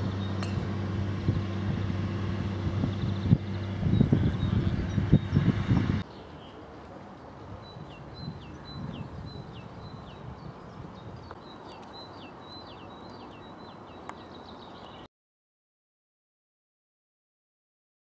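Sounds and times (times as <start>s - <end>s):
faint outdoor background hiss: 0.0s - 15.1s
small bird chirping: 2.8s - 6.6s, 7.6s - 15.1s.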